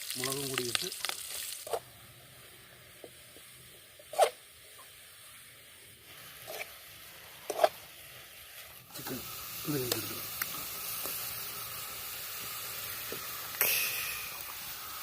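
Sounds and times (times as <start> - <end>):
faint sizzle of frying in oil: 0.0 - 15.0
spoon scraping a pan: 6.4 - 6.8, 7.4 - 7.8.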